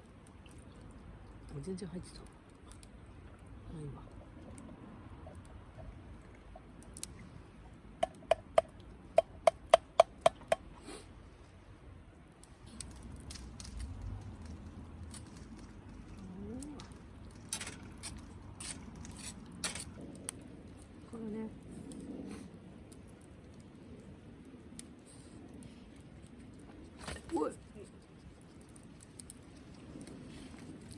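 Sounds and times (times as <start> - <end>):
light clatter: 12.6 - 20.3.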